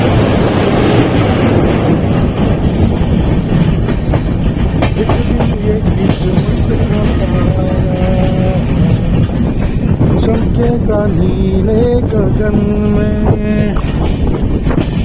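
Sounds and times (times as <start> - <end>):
train rumbling on track: 0.0 - 15.0
wheels clattering over rail joints: 0.0 - 15.0.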